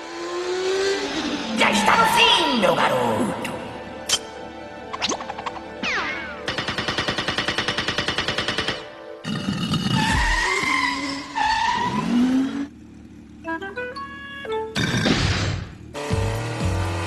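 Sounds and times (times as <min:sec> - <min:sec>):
cartoon rattling engine buzz: 0:09.2 - 0:17.0
cartoon screeching skids: 0:09.9 - 0:12.7.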